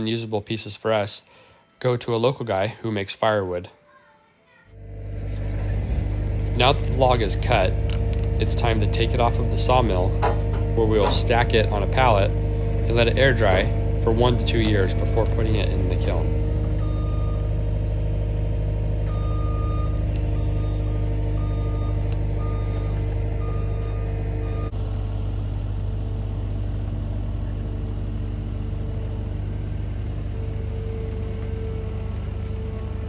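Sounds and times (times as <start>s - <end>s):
machine engine running: 4.7s - 33.0s
back-up alarm beeping: 5.1s - 24.8s.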